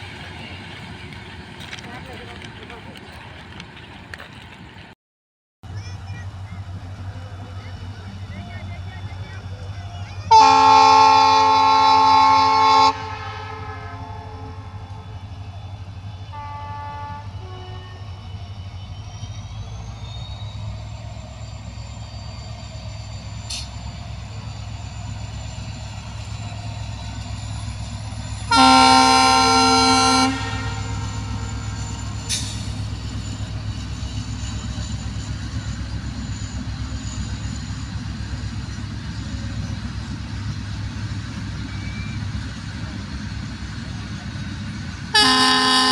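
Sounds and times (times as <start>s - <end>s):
passing train rumbling: 0.0s - 5.0s, 5.6s - 45.9s
locomotive horn blasts: 10.3s - 15.0s, 16.3s - 18.2s, 28.4s - 32.4s, 45.2s - 45.9s.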